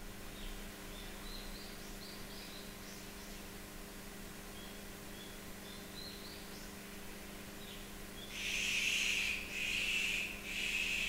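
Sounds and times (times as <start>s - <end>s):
faint high bird chirps: 7.6s - 11.0s
harsh noisy bird calls: 8.2s - 11.0s.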